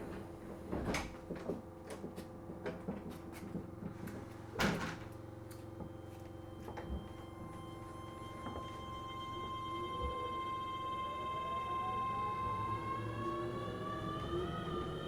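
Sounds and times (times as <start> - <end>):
train electrical hum: 5.5 - 15.0.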